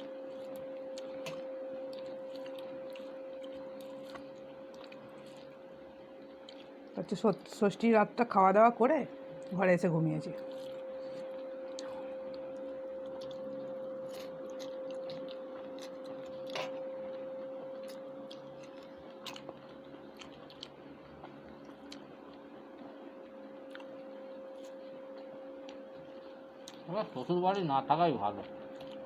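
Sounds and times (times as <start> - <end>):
chewing: 0.0 - 5.7, 6.4 - 6.8, 10.4 - 26.9, 28.4 - 29.0
steady hum: 0.0 - 29.0.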